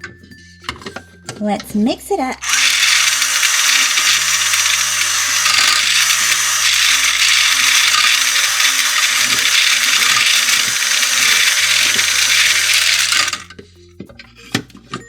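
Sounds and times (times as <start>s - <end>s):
toy mixer motor whirring: 2.4s - 13.6s.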